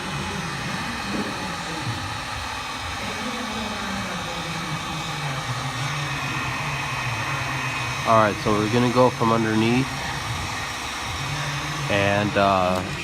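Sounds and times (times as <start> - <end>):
heat gun blowing hiss: 0.0 - 13.0.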